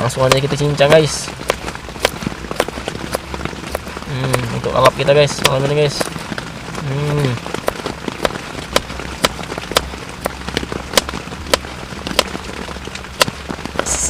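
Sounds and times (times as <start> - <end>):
knife chopping food: 0.2 - 10.4.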